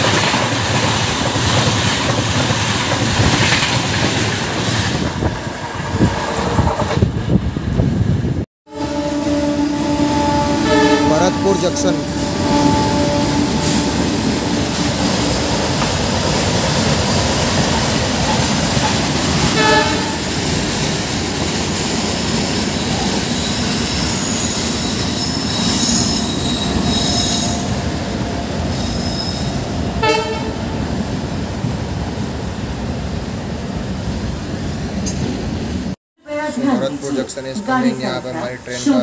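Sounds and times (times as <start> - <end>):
train wheels rumbling on track: 0.0 - 8.5, 9.3 - 36.0
sharp train toots: 4.6 - 31.0
high squealing tones: 9.5 - 39.0.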